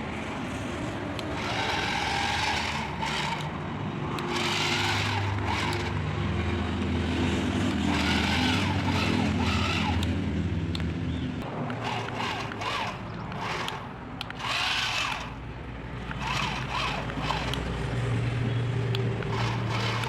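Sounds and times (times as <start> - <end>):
toy electric motor whining: 1.2 - 3.6, 4.2 - 6.0, 7.7 - 10.1, 11.7 - 17.8, 19.2 - 20.0.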